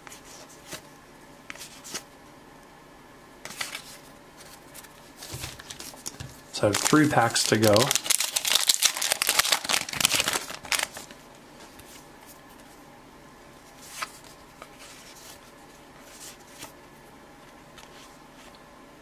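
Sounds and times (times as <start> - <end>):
wrapper crinkling and tearing: 5.4 - 11.2.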